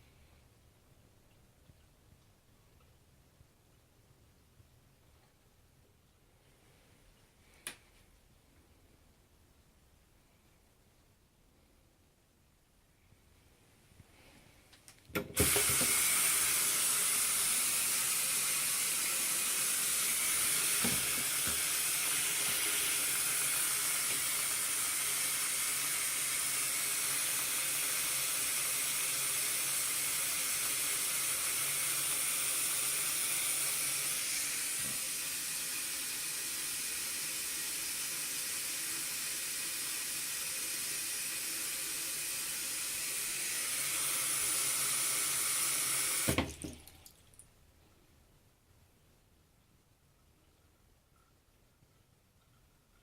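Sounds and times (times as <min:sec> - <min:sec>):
water running from tap: 0:15.4 - 0:47.4.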